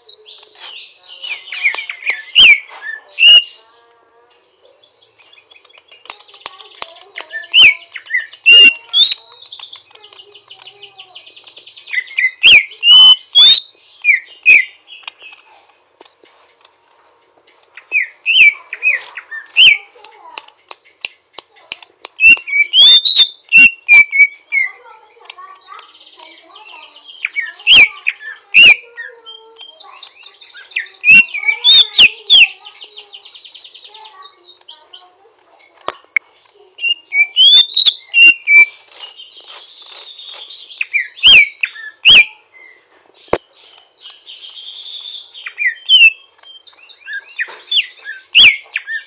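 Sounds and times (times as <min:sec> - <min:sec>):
bird singing whistled notes: 0:00.0 - 0:03.6, 0:07.2 - 0:15.3, 0:17.8 - 0:19.9, 0:22.2 - 0:24.8, 0:25.6 - 0:35.2, 0:36.8 - 0:49.0
harsh twittering bird trill: 0:00.0 - 0:03.7, 0:04.8 - 0:15.5, 0:17.8 - 0:19.9, 0:22.2 - 0:35.3, 0:36.8 - 0:49.0
bird whistling sharp notes: 0:12.0 - 0:14.7, 0:22.2 - 0:24.4, 0:36.8 - 0:38.8, 0:40.2 - 0:42.8, 0:43.5 - 0:49.0.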